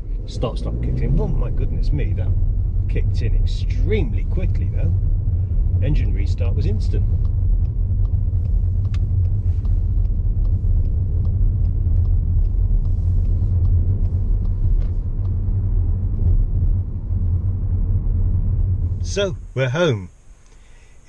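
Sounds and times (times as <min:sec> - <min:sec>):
car engine rumble from inside: 0:00.0 - 0:21.0
faint light ticks: 0:07.1 - 0:15.5, 0:20.4 - 0:20.7.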